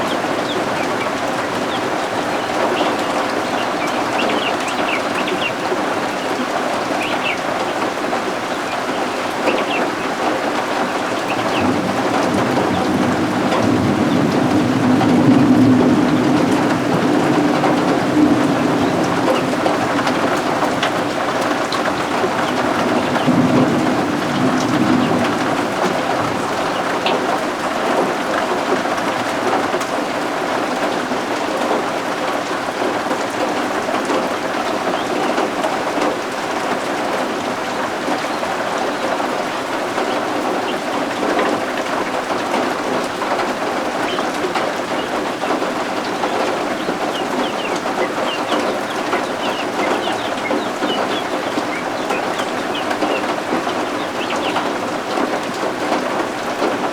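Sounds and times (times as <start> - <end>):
chicks peeping: 0.0 - 16.8, 17.5 - 29.8, 37.7 - 56.8
heavy rain: 0.0 - 56.9
thunder rolling: 8.9 - 29.6.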